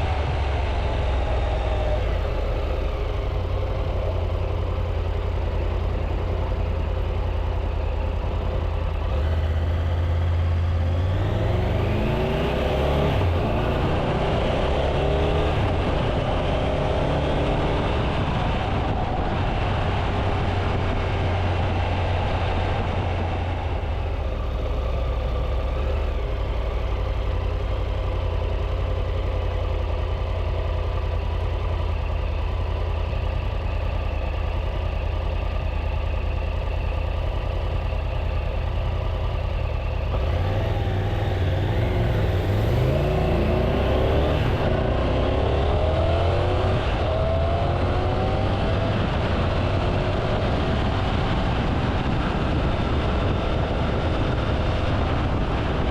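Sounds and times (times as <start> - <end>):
heavy low rumble: 0.0 - 55.9
motorcycle engine cruising: 0.0 - 55.9.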